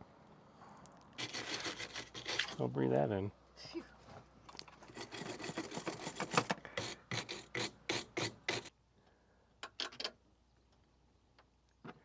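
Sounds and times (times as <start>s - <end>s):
quick rasping strokes: 1.2s - 2.6s, 4.9s - 8.7s.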